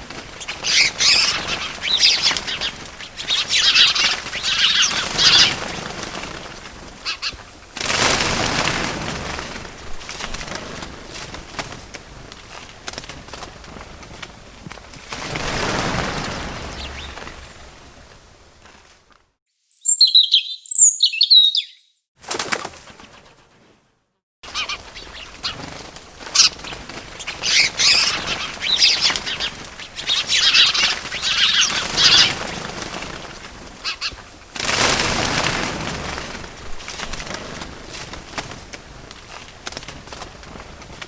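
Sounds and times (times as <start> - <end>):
wings flapping: 0.0 - 19.2, 22.2 - 41.0
birds chirping: 0.3 - 7.6, 15.8 - 17.9, 19.6 - 22.0, 24.5 - 33.2.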